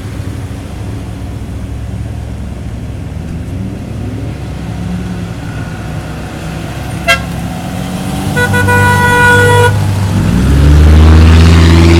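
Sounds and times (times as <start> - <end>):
engine running: 0.0 - 11.9
vehicle horn honking: 7.0 - 7.4, 8.4 - 9.8.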